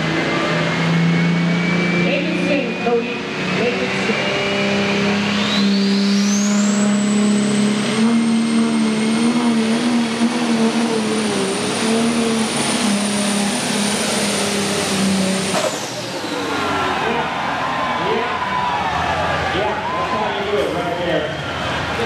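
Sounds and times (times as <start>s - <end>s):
turbo whine: 0.0s - 17.4s
diesel engine drone: 0.0s - 22.0s.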